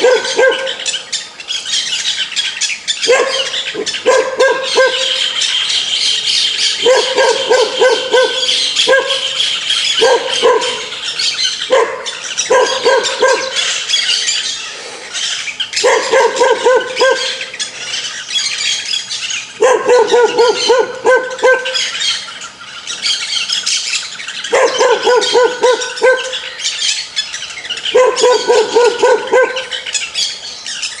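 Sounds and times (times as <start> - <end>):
dog barking: 0.0 - 0.9, 3.1 - 5.3, 6.8 - 9.4, 10.0 - 11.0, 11.7 - 13.6, 15.8 - 17.5, 19.6 - 21.9, 24.5 - 26.5, 27.9 - 29.8.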